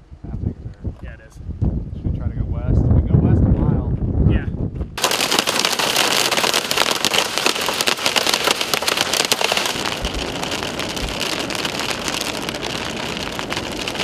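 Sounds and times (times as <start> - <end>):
heavy rain on vehicle roof: 5.0 - 14.0.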